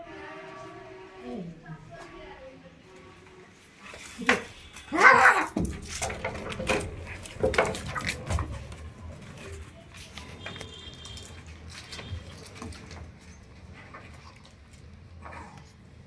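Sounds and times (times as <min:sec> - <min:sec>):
cats scuffling: 0:03.5 - 0:15.2
cat crying: 0:04.9 - 0:05.6.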